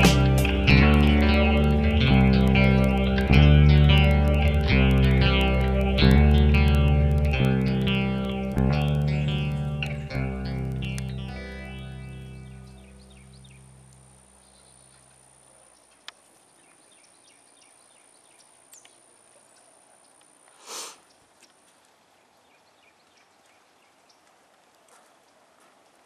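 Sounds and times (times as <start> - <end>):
guitar music: 0.0 - 14.4
faint steady high whine: 0.0 - 21.6
small birds chirping: 0.0 - 26.0
short rush of noise: 20.6 - 21.0.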